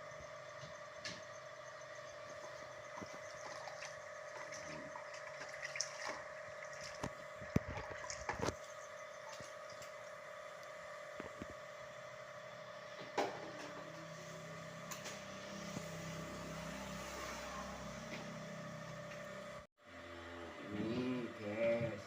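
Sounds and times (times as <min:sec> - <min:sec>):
steady hum: 0:00.0 - 0:22.0
water splashing and trickling: 0:03.0 - 0:08.6.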